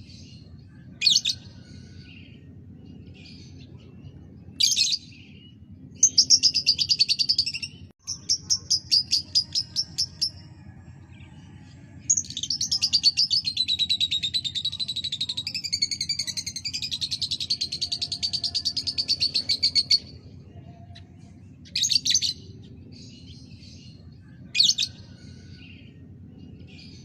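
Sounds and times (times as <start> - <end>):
low hum: 0.0 - 27.0
lovebird chirping and trilling: 4.5 - 10.4, 12.1 - 20.1.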